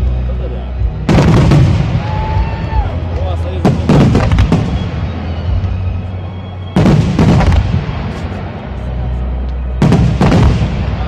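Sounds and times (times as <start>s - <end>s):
music with deep bass: 0.0s - 11.0s
fireworks bangs: 1.0s - 2.8s, 3.5s - 8.8s, 9.7s - 11.0s.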